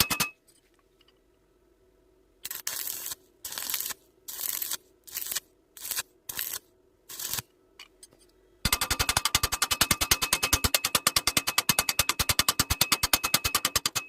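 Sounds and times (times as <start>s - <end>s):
welding arc crackling: 2.5s - 7.5s.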